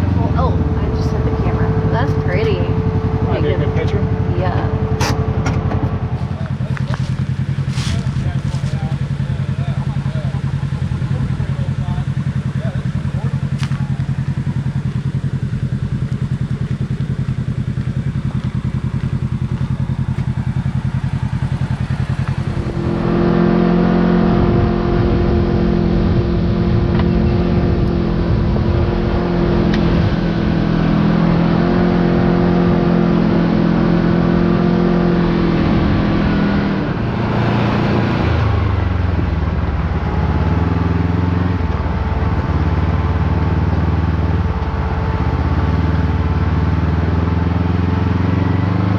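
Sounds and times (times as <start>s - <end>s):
off-road vehicle engine running: 0.0s - 48.9s.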